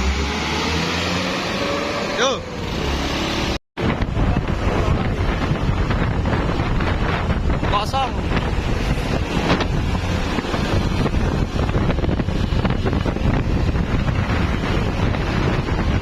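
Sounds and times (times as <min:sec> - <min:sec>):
road traffic rumble: 0:00.0 - 0:16.0
wind buffeting microphone: 0:03.8 - 0:16.0.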